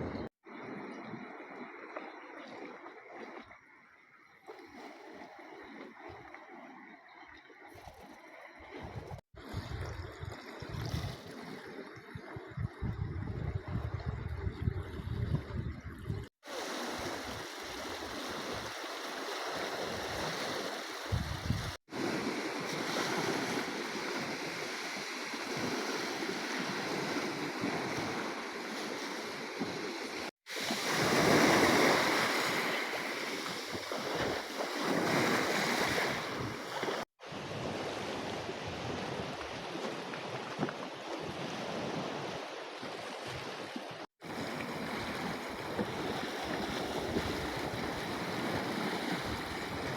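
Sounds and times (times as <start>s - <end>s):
wind on microphone: 8.7s - 16.3s, 19.8s - 28.4s, 29.4s - 42.4s, 44.3s - 49.9s
sea waves washing: 16.2s - 42.6s, 43.3s - 49.9s.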